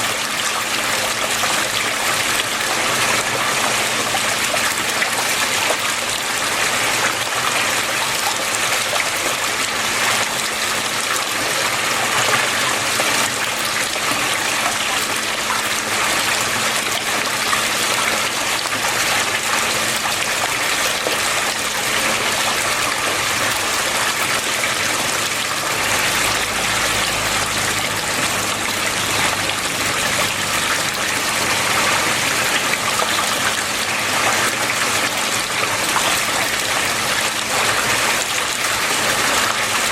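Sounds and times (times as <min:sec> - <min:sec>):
water flowing and trickling: 0:00.0 - 0:39.9.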